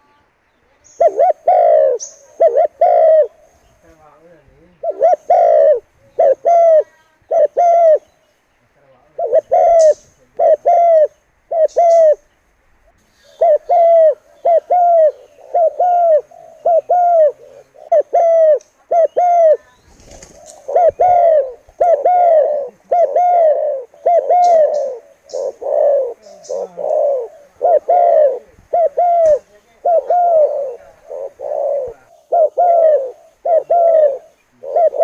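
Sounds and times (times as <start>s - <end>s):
dove cooing: 0.8s - 8.2s, 9.0s - 12.4s, 13.2s - 35.0s.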